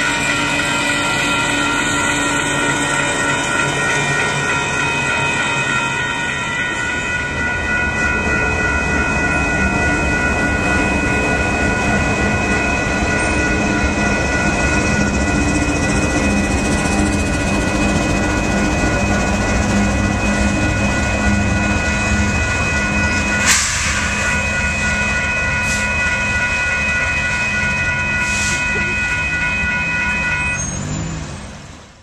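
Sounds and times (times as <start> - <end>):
high-pitched ringing tones: 0.0 - 31.2
freight train rumbling past: 0.0 - 32.0.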